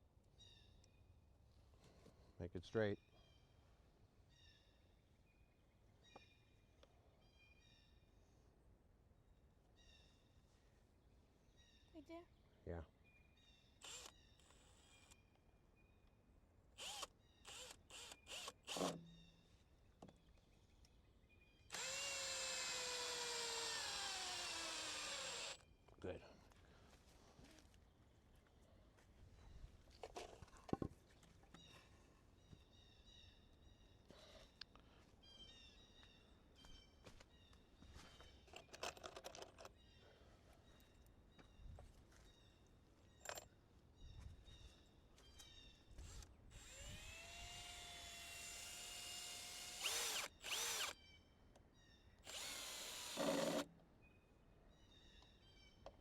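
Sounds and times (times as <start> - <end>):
electric drill driving a screw: 13.8 - 15.2, 16.8 - 18.9, 21.7 - 25.6, 46.0 - 51.0, 52.2 - 53.7.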